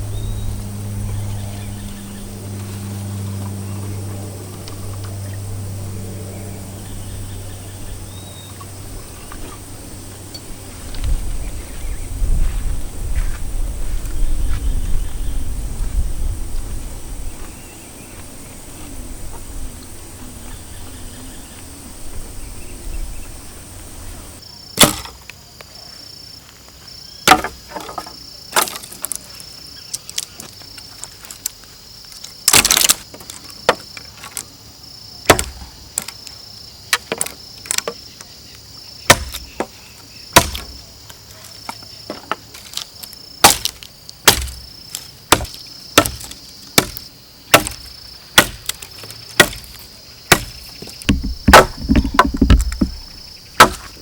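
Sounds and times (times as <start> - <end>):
crickets chirring: 0.0 - 54.0
sharp woody knocks: 27.3 - 28.7, 35.3 - 35.6, 39.1 - 39.7, 40.4 - 40.8, 43.4 - 43.7, 44.3 - 44.6, 45.3 - 47.8, 48.4 - 48.7, 49.4 - 49.7, 50.3 - 54.0.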